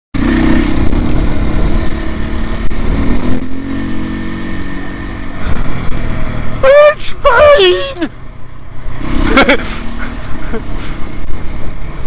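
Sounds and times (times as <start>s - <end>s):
dirt bike engine under throttle: 0.2s - 6.8s, 8.8s - 11.1s.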